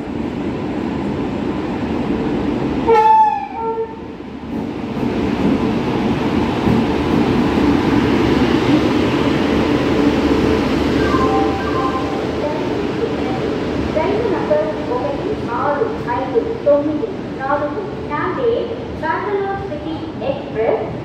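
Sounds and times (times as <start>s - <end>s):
train passing rumble: 0.0s - 21.0s
train horn blasts: 2.9s - 4.0s.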